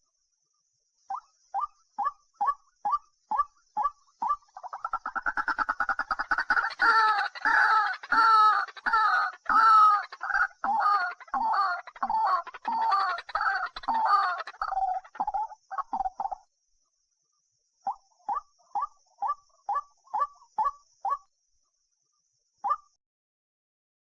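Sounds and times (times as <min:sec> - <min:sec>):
bird calling: 0:04.2 - 0:16.4.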